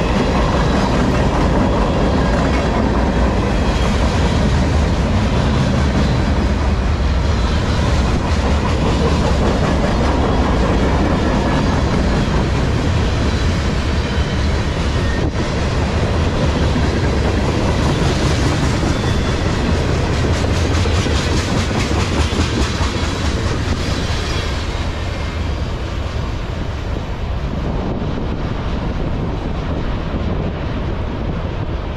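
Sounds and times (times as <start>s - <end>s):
steel wheels clacking over rail joints: 0.0s - 25.5s
low train rumble: 0.0s - 31.9s.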